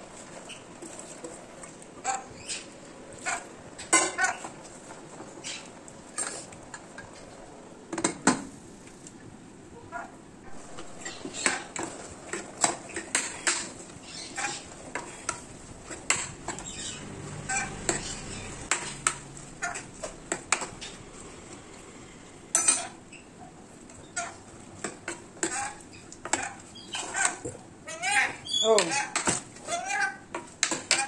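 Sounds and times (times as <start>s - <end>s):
metal utensils clinking against pot: 22.5s - 23.0s.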